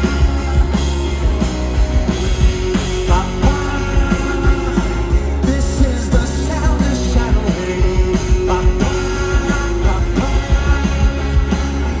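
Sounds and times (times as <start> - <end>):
drums: 0.0 - 12.0
electric guitars and bass: 0.0 - 12.0
person singing: 2.9 - 12.0.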